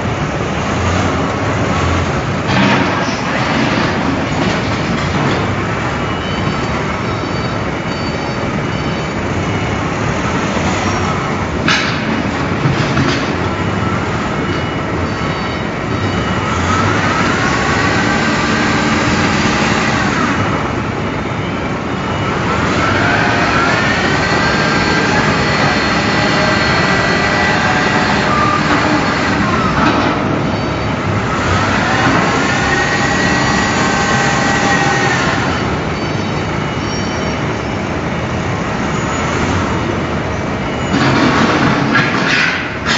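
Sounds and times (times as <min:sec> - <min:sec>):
industrial machinery noise: 0:00.0 - 0:42.9
motor whine: 0:16.4 - 0:20.7, 0:22.3 - 0:30.2, 0:31.1 - 0:36.0.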